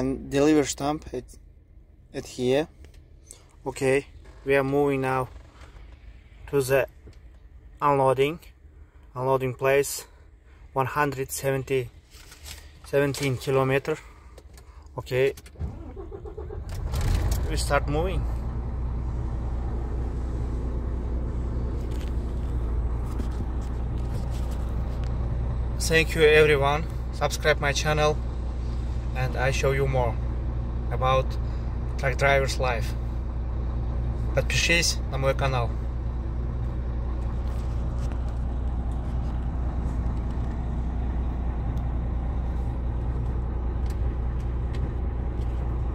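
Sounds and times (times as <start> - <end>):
truck engine rumbling: 11.7 - 45.9.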